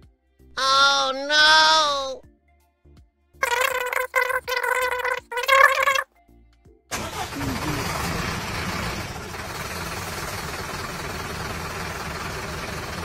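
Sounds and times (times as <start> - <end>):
engine-like rumble with hiss: 7.1 - 13.0.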